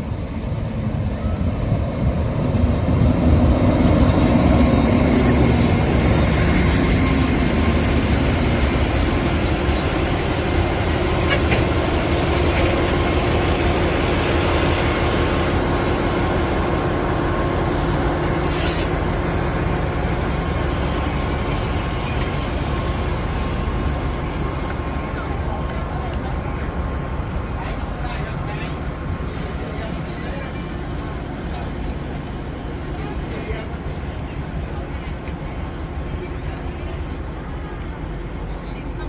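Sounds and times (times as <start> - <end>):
train rumbling: 0.0 - 39.0
short high hiss: 17.6 - 19.0.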